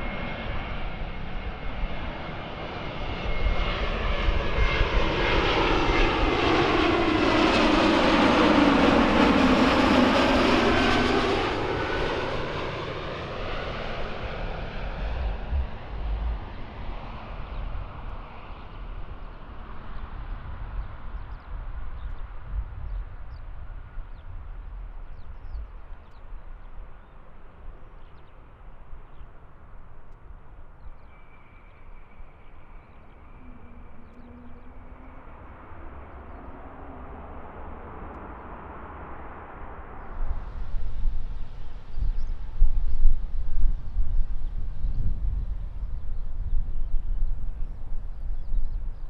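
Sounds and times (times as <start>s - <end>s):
jet airliner engine rumble: 0.0s - 49.0s
faint bird chirps: 30.7s - 37.4s.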